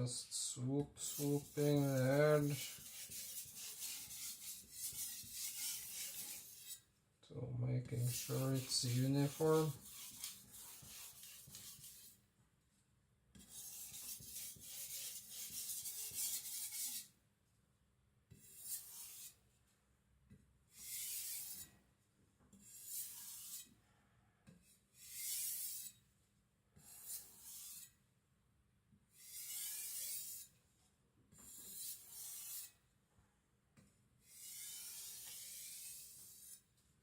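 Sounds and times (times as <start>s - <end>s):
cleaver scraping on whetstone: 1.0s - 6.8s, 8.0s - 12.1s, 13.5s - 17.1s, 18.4s - 19.4s, 20.8s - 21.7s, 22.6s - 23.7s, 25.0s - 26.0s, 26.8s - 27.9s, 29.2s - 30.5s, 31.4s - 32.7s, 34.3s - 36.6s.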